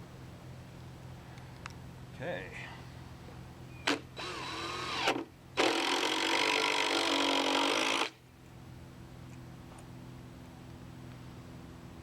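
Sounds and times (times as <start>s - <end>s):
power tool cutting wood: 3.9s - 8.2s.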